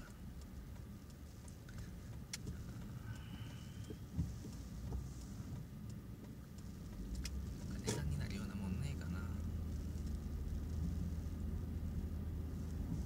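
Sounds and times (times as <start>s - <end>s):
faint clicks: 0.0s - 8.5s
car driving rumble from inside: 0.0s - 13.0s.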